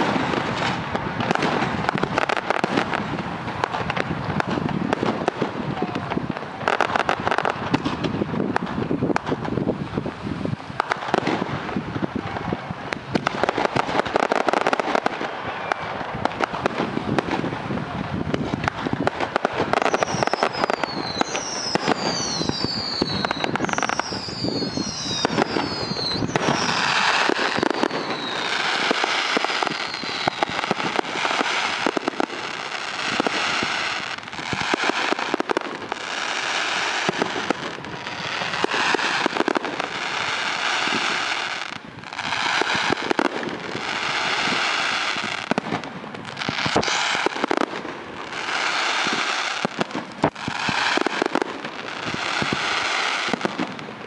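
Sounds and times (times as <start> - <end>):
firework bangs and crackles: 0.0 - 54.0
dense crackling shower: 10.7 - 54.0
firework falling whistles: 13.7 - 16.5, 19.7 - 45.7, 46.4 - 47.7.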